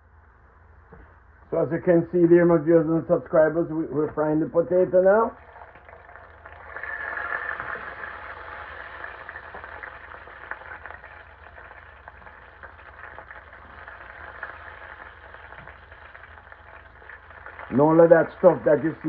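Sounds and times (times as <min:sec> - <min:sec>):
potatoes sizzling in hot oil: 0:05.2 - 0:19.0.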